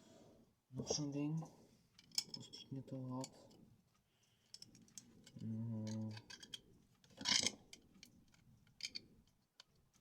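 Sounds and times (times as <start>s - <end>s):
plastic bricks clicking together: 4.6s - 9.9s.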